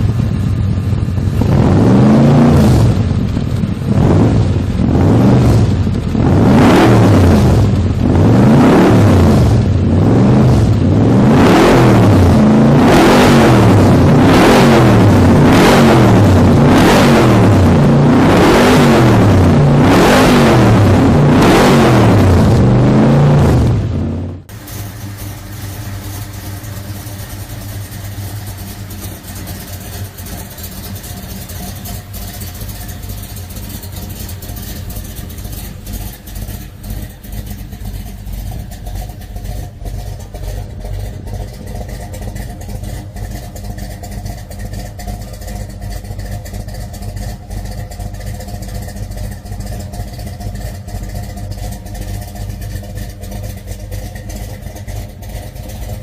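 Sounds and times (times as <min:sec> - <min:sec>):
car engine running steadily: 0:00.0 - 0:56.0.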